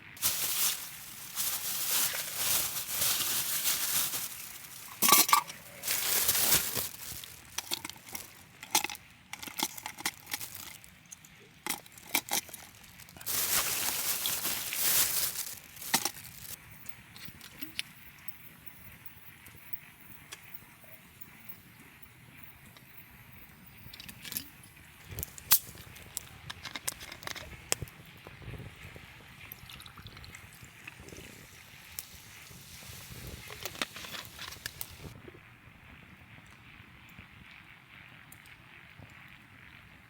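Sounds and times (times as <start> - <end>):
rustling of camp gear: 0.0 - 17.9, 23.8 - 28.8, 30.6 - 35.2
utensils clinking and knocking: 0.2 - 10.8.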